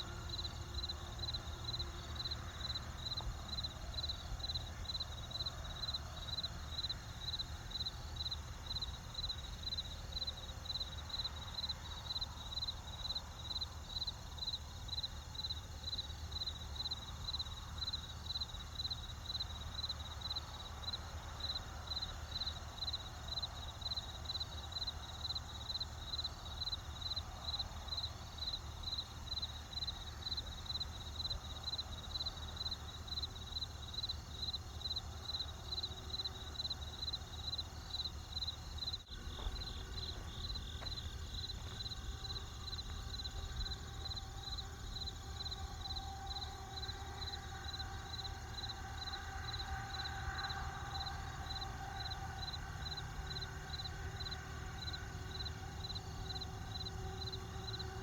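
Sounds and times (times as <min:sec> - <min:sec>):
crickets chirping: 0:00.0 - 0:58.0
low steady rumble: 0:38.5 - 0:58.0.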